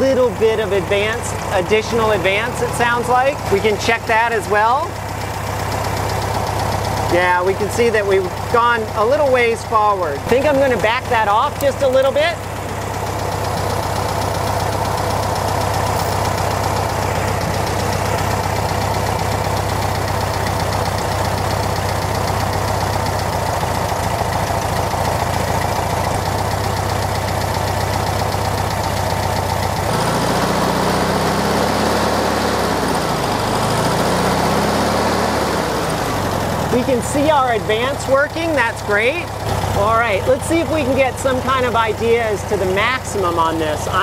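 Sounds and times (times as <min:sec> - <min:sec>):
car engine idling and revving: 0:00.0 - 0:44.0.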